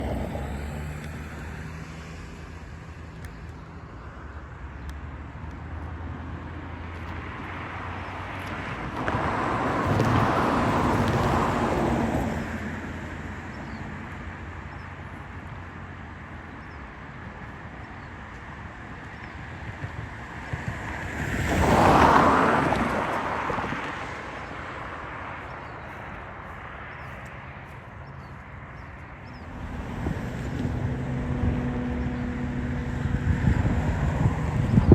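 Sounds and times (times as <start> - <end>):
vehicle passing by: 0.0 - 3.1, 21.0 - 34.9
traffic engine hum: 0.0 - 34.9.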